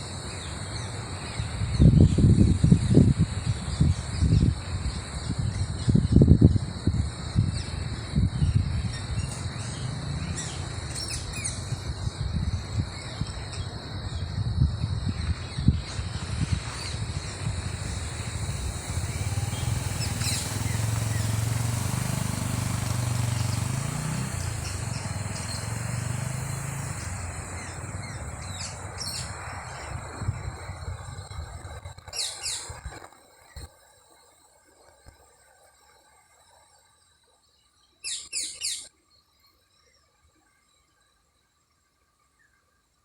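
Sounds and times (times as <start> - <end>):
birds chirping: 0.0 - 31.1
high insect drone: 0.0 - 33.6
low rumbling: 0.1 - 31.9
motor vehicle passing: 7.8 - 31.8.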